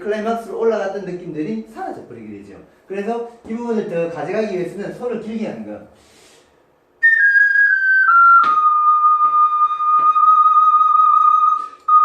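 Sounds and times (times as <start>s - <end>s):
ocarina playing: 7.0s - 12.0s.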